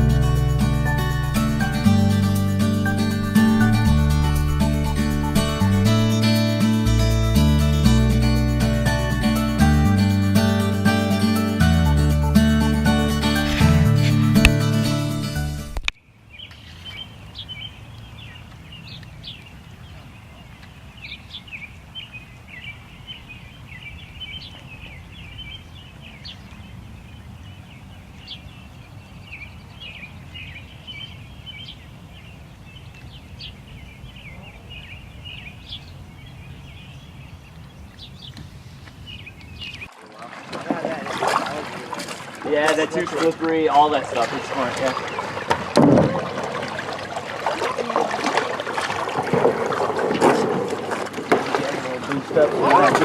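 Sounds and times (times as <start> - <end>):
low outdoor rumble: 0.0 - 10.6
small birds chirping: 13.2 - 39.9, 41.5 - 45.8.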